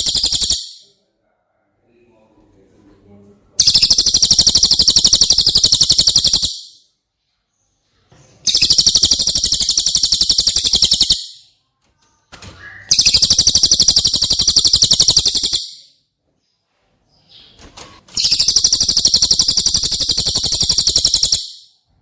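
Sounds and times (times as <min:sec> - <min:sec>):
songbird high trill: 0:08.5 - 0:11.3, 0:12.8 - 0:15.8, 0:18.2 - 0:21.6.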